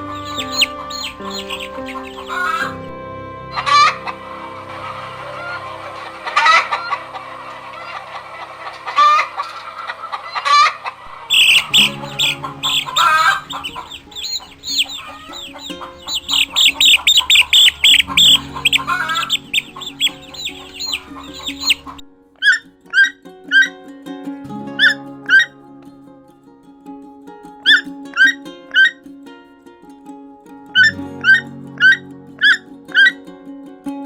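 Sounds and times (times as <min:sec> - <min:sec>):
chickens clucking: 0:00.0 - 0:02.9, 0:03.5 - 0:23.7.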